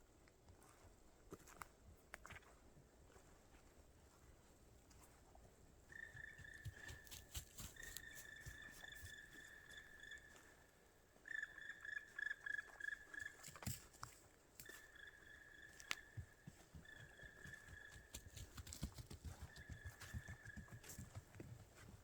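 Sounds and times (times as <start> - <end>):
footsteps crunching in snow: 6.0 - 9.7.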